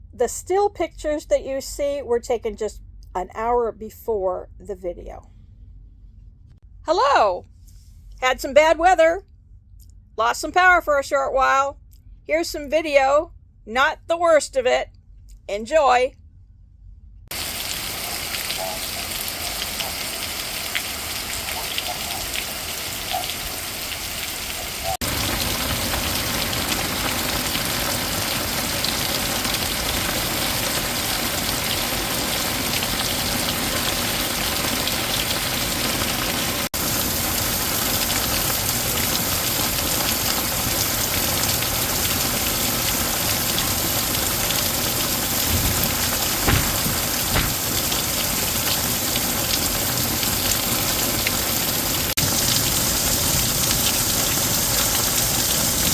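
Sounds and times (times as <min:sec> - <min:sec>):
heavy rain pouring: 0:17.3 - 0:55.9
brief low bumps: 0:45.4 - 0:47.7.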